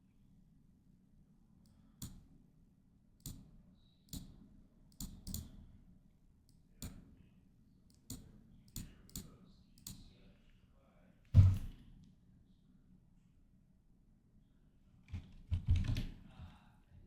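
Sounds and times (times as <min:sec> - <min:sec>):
computer mouse clicking: 0:04.1 - 0:05.5.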